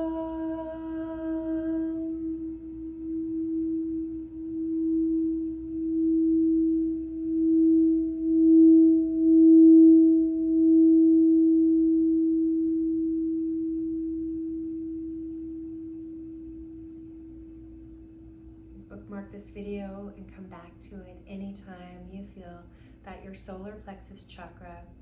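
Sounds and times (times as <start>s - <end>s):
singing bowl tone: 0.0s - 19.0s.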